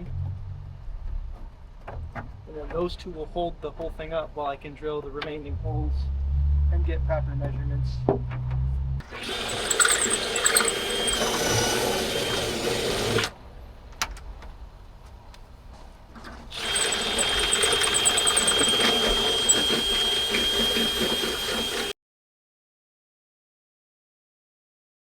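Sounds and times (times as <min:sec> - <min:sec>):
cordless drill drilling sheet metal: 0:09.0 - 0:13.4, 0:16.5 - 0:22.0.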